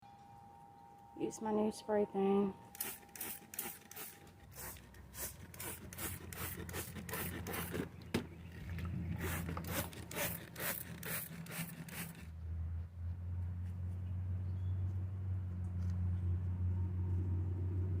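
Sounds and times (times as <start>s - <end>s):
steady low hum: 0.0s - 18.0s
water sprayer hissing bursts: 2.7s - 7.9s, 9.1s - 12.3s.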